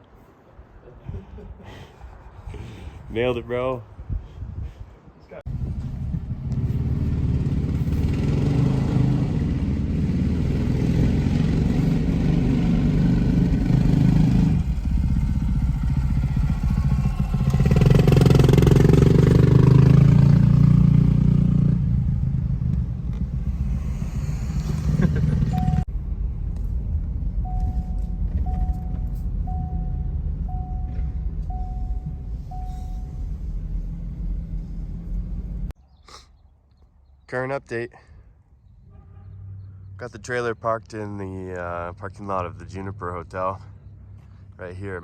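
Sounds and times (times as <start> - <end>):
vehicle engine and road noise: 0.0 - 45.0
short beeps: 25.5 - 25.9, 27.4 - 33.8.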